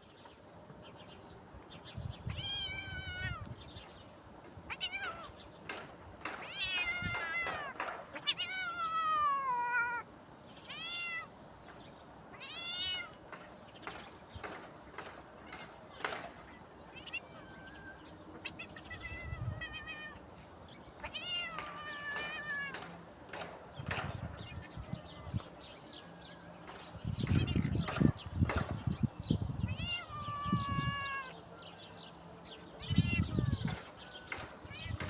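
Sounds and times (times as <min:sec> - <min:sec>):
young cat meowing: 0:02.3 - 0:03.6, 0:04.7 - 0:05.3, 0:06.4 - 0:11.3, 0:12.3 - 0:13.2, 0:16.9 - 0:20.3, 0:21.0 - 0:22.8, 0:29.6 - 0:31.4, 0:32.8 - 0:33.8.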